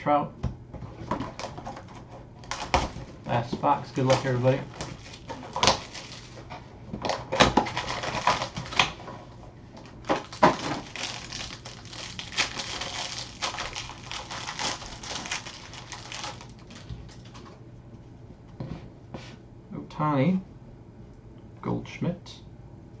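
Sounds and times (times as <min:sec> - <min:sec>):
packaging crackling and rustling: 0:01.0 - 0:17.6.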